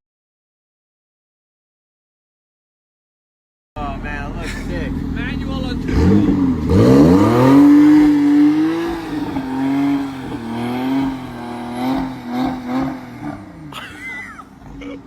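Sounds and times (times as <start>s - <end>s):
car engine revving: 3.9s - 15.0s.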